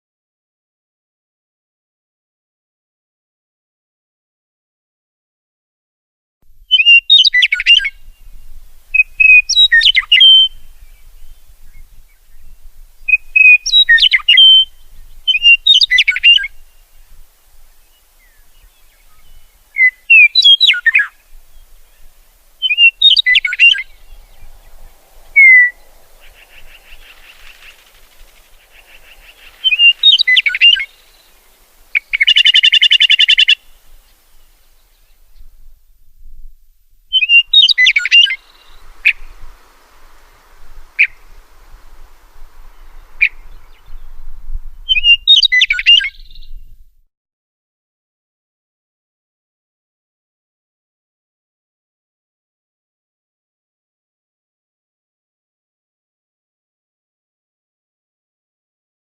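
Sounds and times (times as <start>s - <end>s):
songbirds warbling: 6.7s - 35.6s, 37.1s - 46.6s
soft buzzing: 21.1s - 32.6s, 37.8s - 44.9s
rapid buzzy bird trill: 22.6s - 34.3s, 37.1s - 43.8s.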